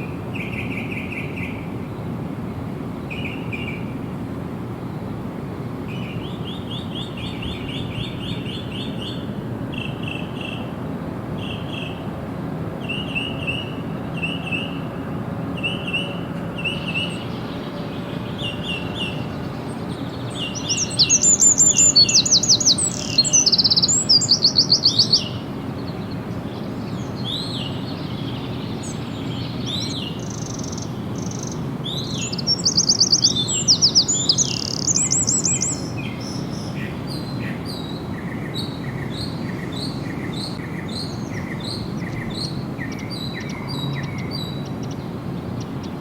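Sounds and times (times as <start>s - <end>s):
bird trilling: 18.3s - 45.0s.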